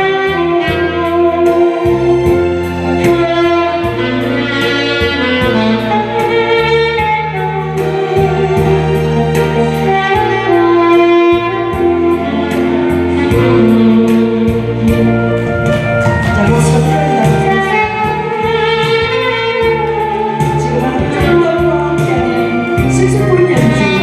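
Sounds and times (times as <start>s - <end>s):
backing accompaniment: 0.0s - 24.0s
saxophone melody: 0.0s - 24.0s
steady drum beat: 11.5s - 24.0s.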